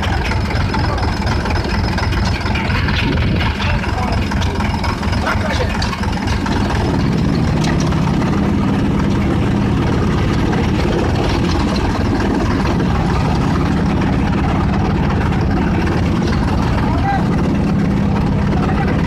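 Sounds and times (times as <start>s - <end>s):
chaff cutter running: 0.0s - 19.0s.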